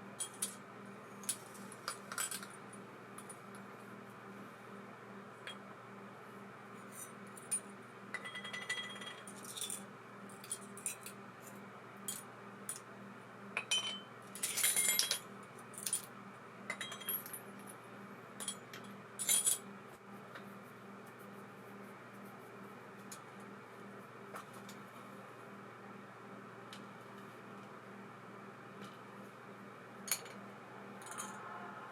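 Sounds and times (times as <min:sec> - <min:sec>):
steady low hum: 0:00.0 - 0:31.9
small metal parts clinking: 0:01.2 - 0:02.6, 0:08.2 - 0:09.8, 0:13.6 - 0:16.1, 0:18.4 - 0:19.6, 0:31.0 - 0:31.4.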